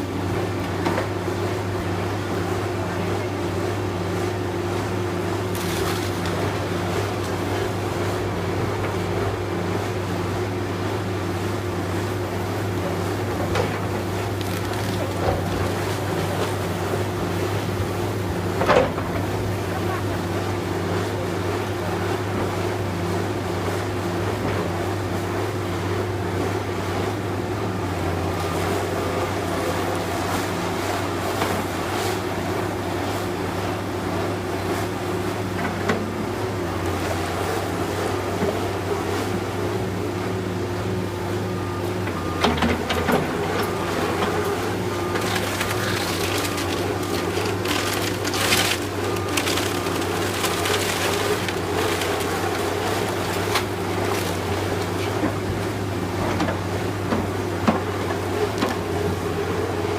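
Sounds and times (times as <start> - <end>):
building cracking and crunching: 14.2 - 15.5, 45.1 - 54.5
diesel engine running: 41.6 - 56.5.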